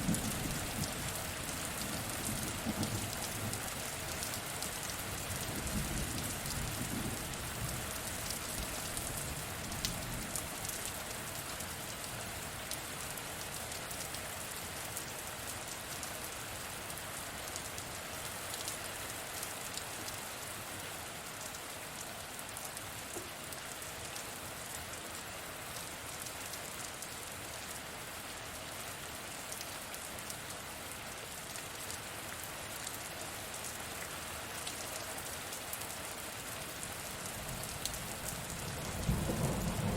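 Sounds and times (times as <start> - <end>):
heavy rain: 0.0 - 39.9
distant thunder rumble: 38.6 - 39.9.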